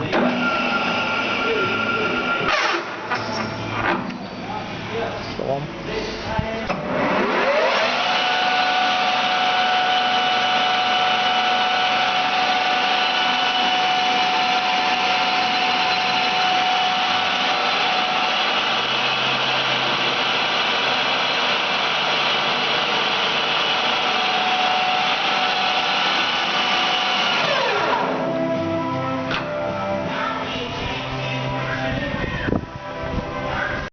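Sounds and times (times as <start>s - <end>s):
lathe whining: 0.0s - 3.0s, 6.9s - 29.7s.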